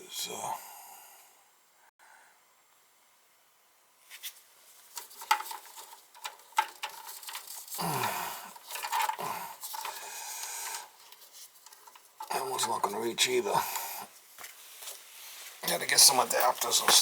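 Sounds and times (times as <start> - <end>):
clicks and taps of wires and tools: 4.9 - 7.8, 8.5 - 12.9, 16.0 - 17.0.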